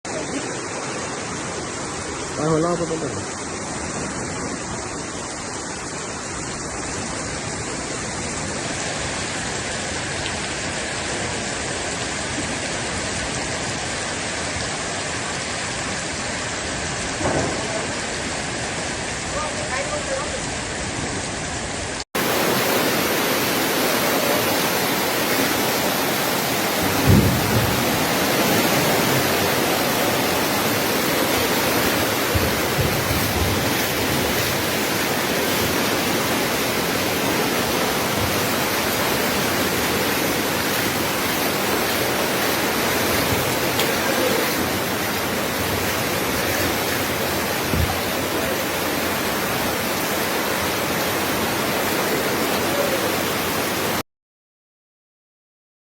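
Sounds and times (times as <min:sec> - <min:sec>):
river rushing: 0:00.0 - 0:54.0
low thumps: 0:26.8 - 0:28.6, 0:32.2 - 0:34.3, 0:47.6 - 0:48.1.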